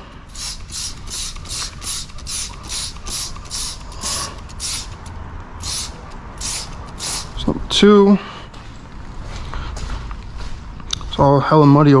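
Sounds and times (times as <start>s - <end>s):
spray bottle hissing: 0.2s - 7.5s.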